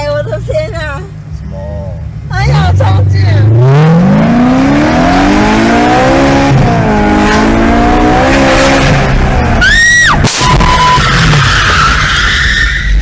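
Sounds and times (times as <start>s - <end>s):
car engine accelerating: 0.0s - 12.1s
tyre squeal: 9.6s - 13.0s
sharp bang: 10.2s - 12.0s.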